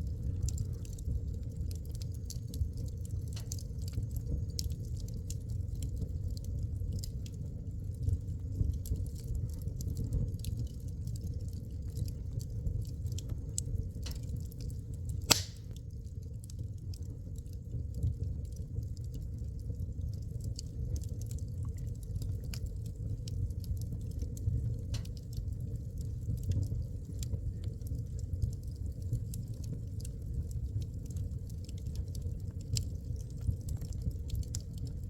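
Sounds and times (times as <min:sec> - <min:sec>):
burning wood crackling and popping: 0:00.0 - 0:35.0
flames rumbling in fireplace: 0:00.0 - 0:35.0.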